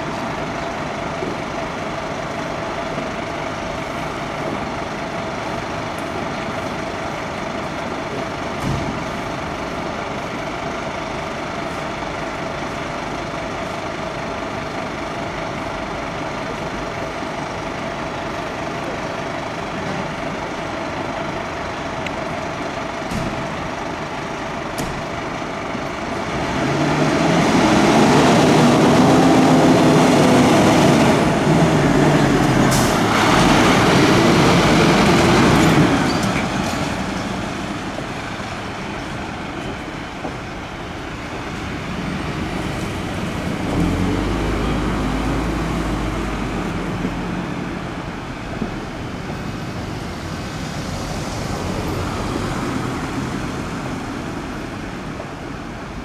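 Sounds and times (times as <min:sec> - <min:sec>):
fire engine diesel engine: 0:00.0 - 0:56.0.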